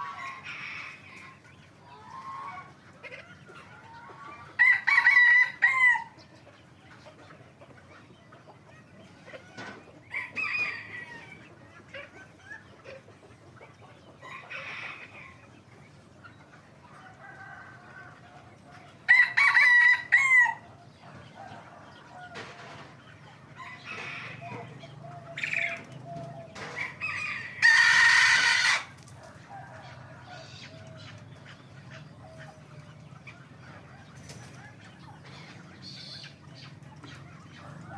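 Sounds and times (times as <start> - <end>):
cockerels crowing: 3.7 - 6.2, 9.4 - 11.6, 16.9 - 31.3.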